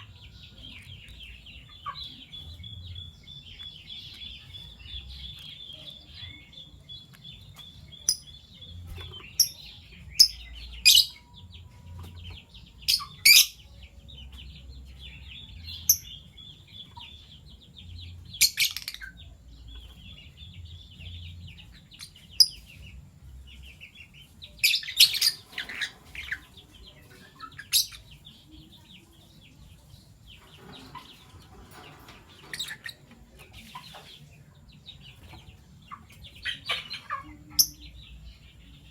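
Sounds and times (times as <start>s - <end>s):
high-pitched bird chatter: 0.0s - 38.9s.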